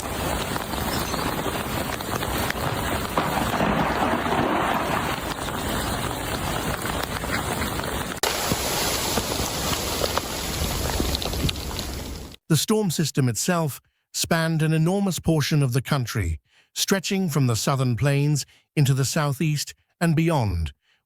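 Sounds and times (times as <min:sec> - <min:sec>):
rushing outdoor hiss: 0:00.0 - 0:12.3
faint crackles: 0:00.0 - 0:12.4.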